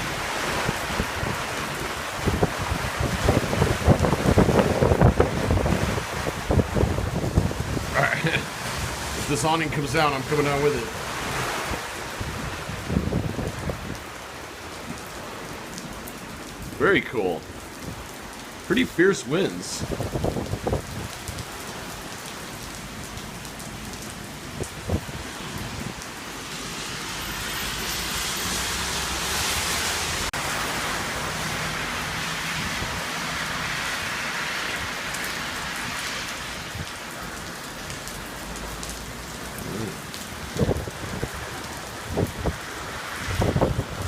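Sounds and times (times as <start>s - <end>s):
wind gusts buffeting microphone: 0.0s - 14.2s, 19.8s - 21.5s, 24.5s - 26.0s, 39.5s - 44.0s
heavy rain pouring: 0.0s - 44.0s.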